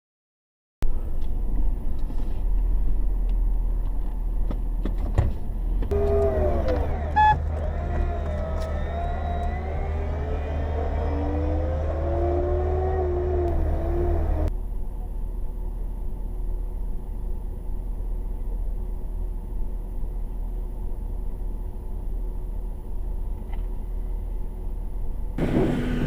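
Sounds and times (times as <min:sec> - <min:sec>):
brief pitched tone: 0:05.9 - 0:14.5
pickup truck engine revving: 0:05.9 - 0:14.5, 0:25.4 - 0:26.0.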